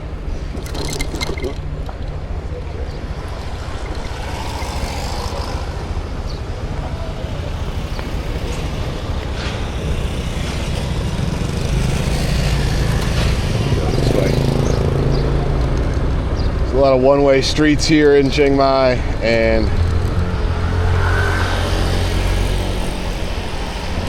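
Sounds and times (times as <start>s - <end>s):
road noise: 0.0s - 24.0s.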